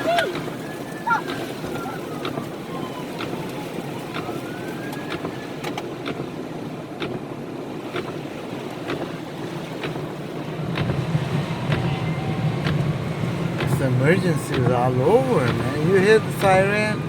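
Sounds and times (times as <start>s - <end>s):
distant siren wailing: 0.0s - 6.4s, 10.0s - 17.0s
heavy rain on a car: 0.0s - 17.0s
sharp ticks of rain: 3.2s - 6.4s, 7.0s - 7.2s, 9.8s - 11.9s, 12.6s - 17.0s
car engine running: 5.1s - 17.0s.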